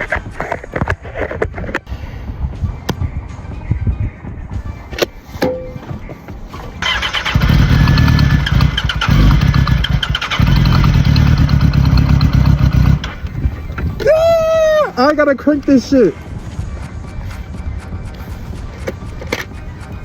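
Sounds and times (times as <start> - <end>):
motorcycle engine cranking: 6.5 - 14.0.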